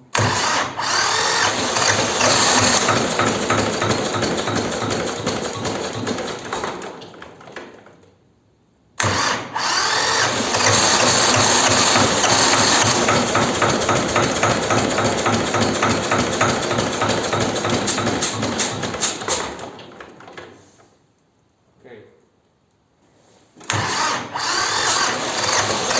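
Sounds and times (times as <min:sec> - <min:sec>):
engine cranking: 0:00.2 - 0:08.0, 0:09.0 - 0:20.4, 0:23.7 - 0:25.9
tractor diesel engine running: 0:00.5 - 0:06.2, 0:09.8 - 0:19.2, 0:24.0 - 0:25.9.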